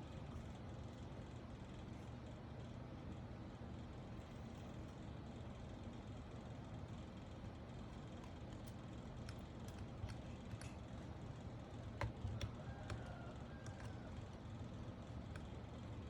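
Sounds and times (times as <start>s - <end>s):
keyboard parts clicking: 11.8s - 14.2s.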